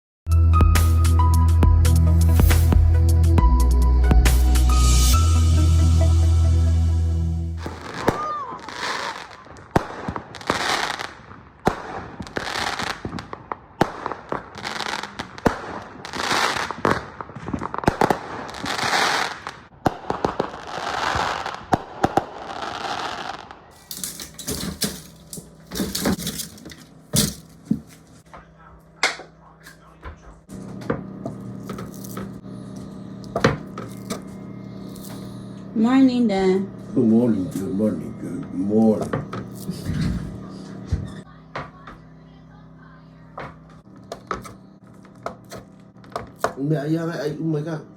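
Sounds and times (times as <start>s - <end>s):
fireworks banging and crackling: 7.6s - 26.6s
low hum: 23.7s - 47.9s.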